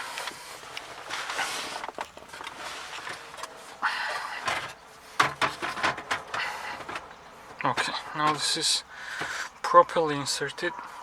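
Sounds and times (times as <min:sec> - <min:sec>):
plastic scraping on plastic: 0:00.2 - 0:08.4.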